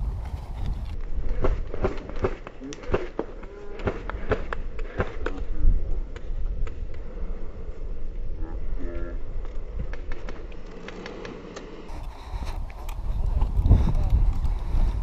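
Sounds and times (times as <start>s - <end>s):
wind rumble on microphone: 0.0s - 2.0s, 11.9s - 15.0s.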